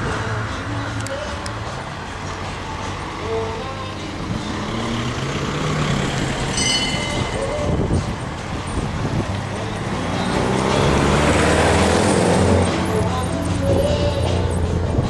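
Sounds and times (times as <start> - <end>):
car engine running: 0.0 - 15.0
people's voices: 0.0 - 15.0.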